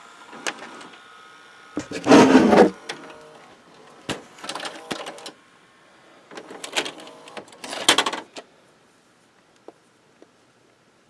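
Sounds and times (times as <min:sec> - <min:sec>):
small motor whirring and clattering: 0:00.0 - 0:05.4.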